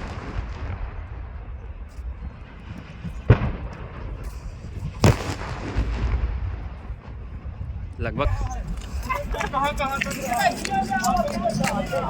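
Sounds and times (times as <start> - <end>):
gas cylinders bursting booms: 0.0 - 9.0
steady low rumble: 0.0 - 12.0.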